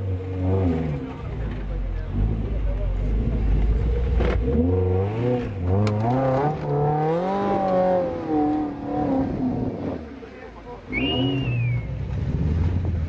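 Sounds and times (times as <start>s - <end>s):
engine revving hard: 2.1s - 10.2s, 10.9s - 12.8s.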